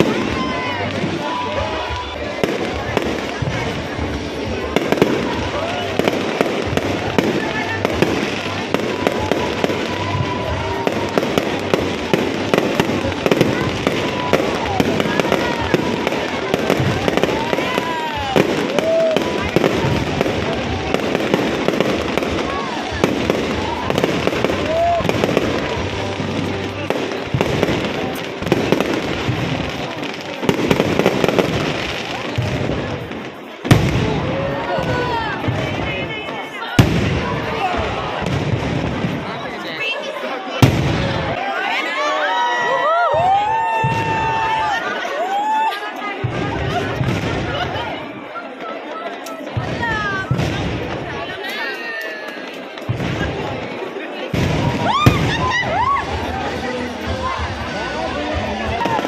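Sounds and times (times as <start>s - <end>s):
music: 0.0s - 39.2s, 54.3s - 59.0s
background noise: 0.0s - 59.0s
fireworks bangs and crackles: 0.0s - 59.0s.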